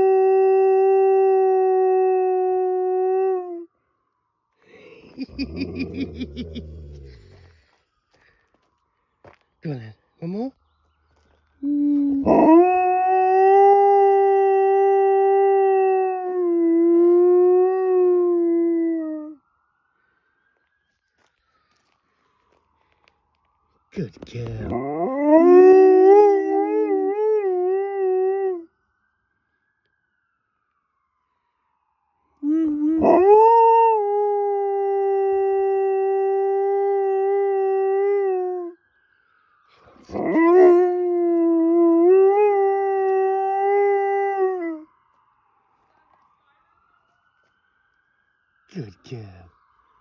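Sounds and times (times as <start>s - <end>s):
siren: 0.0s - 50.0s
dog howling: 11.6s - 19.1s, 24.6s - 28.6s, 32.4s - 38.8s, 40.1s - 44.8s.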